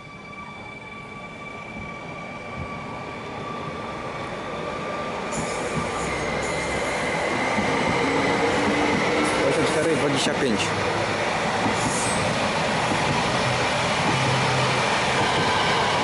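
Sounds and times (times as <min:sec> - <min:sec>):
train wheels rumbling on rails: 0:04.9 - 0:16.0.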